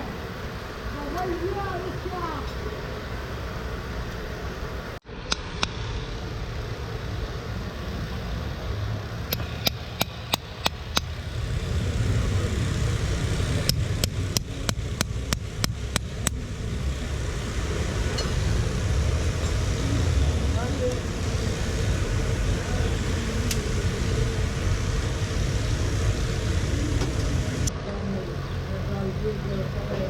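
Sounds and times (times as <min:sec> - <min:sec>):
road traffic rumble: 0:00.0 - 0:30.0
hammer tapping sharp strikes: 0:13.6 - 0:16.4.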